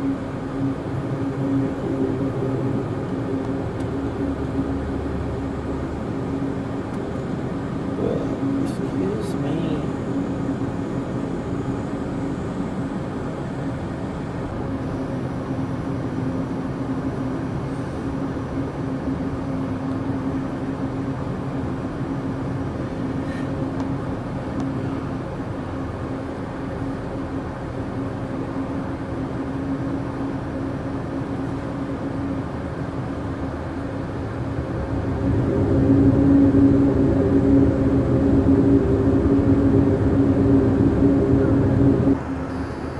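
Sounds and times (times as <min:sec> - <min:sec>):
low hum: 0:00.0 - 0:42.9
train rumbling: 0:33.2 - 0:42.9.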